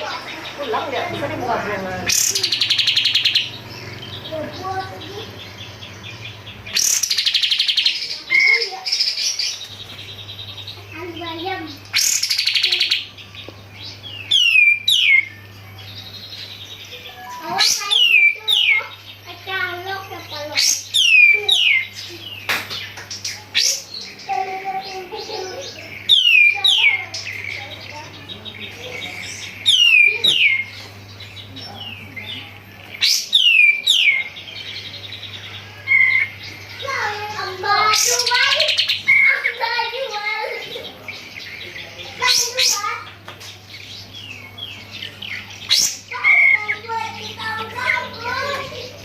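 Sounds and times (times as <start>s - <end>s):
steady low hum: 0.0s - 49.0s
songbird singing whistled notes: 11.8s - 18.9s, 26.0s - 27.7s, 28.5s - 36.8s.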